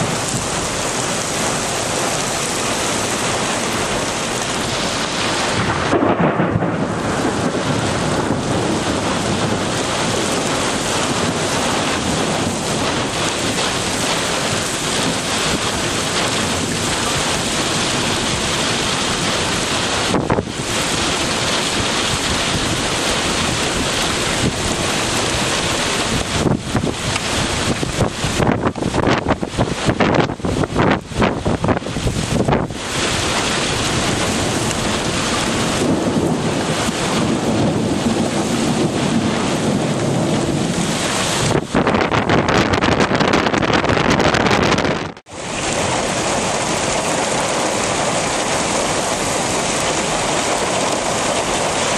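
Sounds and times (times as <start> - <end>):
heavy rain: 0.0 - 51.9
thunder: 4.4 - 45.2.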